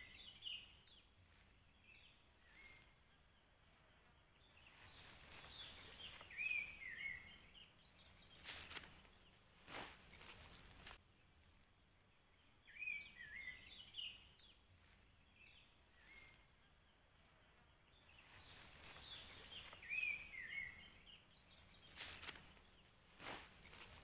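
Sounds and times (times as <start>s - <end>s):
bird chirping: 0.0s - 24.0s
handling rustle: 4.4s - 11.7s, 18.1s - 24.0s.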